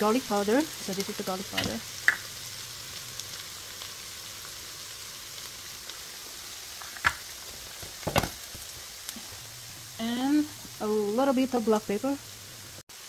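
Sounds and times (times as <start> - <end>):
onion sizzling in a pan: 0.0 - 13.0.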